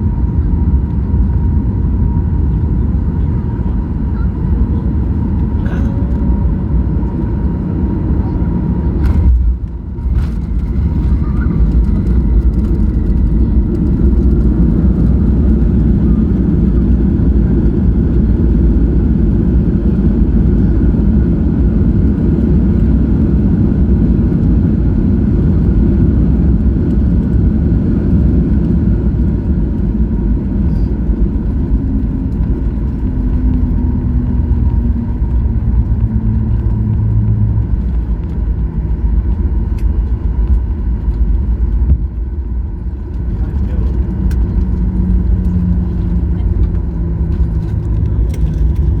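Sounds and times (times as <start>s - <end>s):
airplane rumble: 0.0s - 49.0s.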